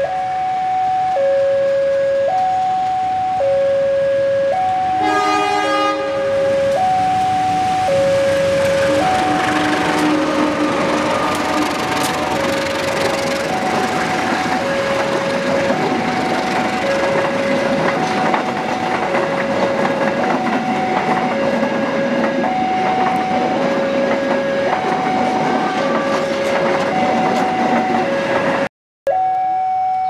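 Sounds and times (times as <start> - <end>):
level-crossing alarm two tones: 0.0 - 30.0
train wheels on rails: 4.8 - 28.7.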